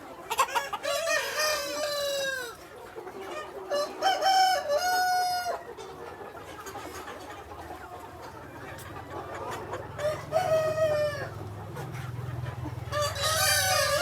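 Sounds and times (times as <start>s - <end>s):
rooster crowing: 13.0s - 14.0s.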